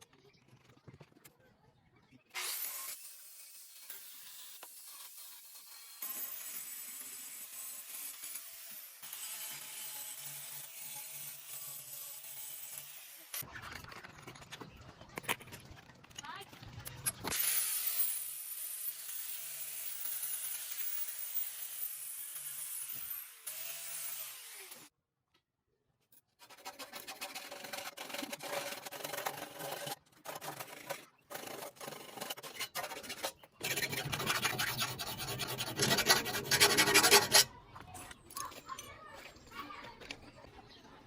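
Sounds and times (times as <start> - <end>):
rough rubbing and scraping: 26.4 - 37.6.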